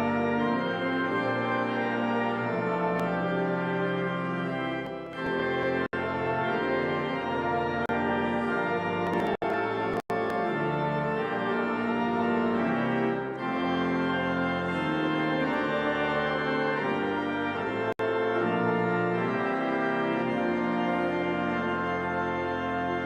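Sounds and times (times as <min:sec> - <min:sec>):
organ and brass playing chords: 0:00.0 - 0:23.0.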